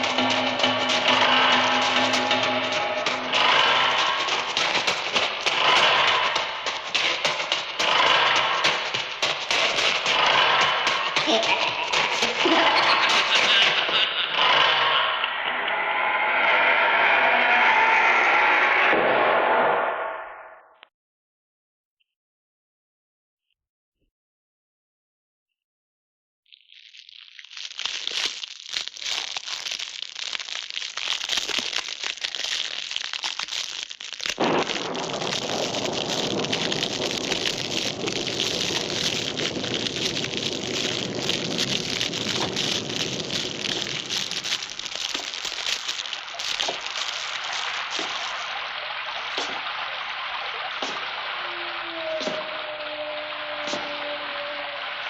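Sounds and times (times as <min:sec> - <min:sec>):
rain hissing with crackles: 0:00.0 - 0:14.2, 0:26.6 - 0:55.0.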